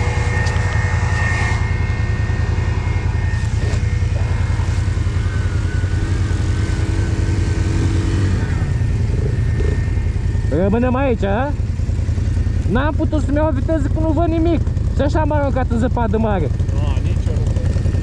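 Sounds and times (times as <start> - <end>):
atv engine rumbling: 0.0 - 18.0
faint high whine: 0.0 - 18.0.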